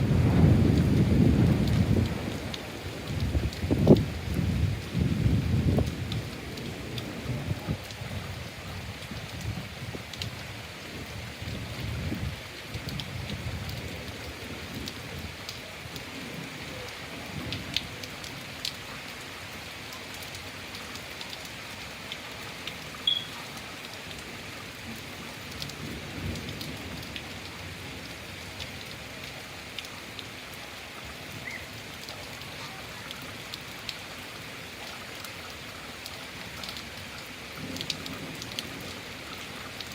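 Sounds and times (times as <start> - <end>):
steady rain: 0.0 - 39.9
short high chirp: 23.0 - 23.4.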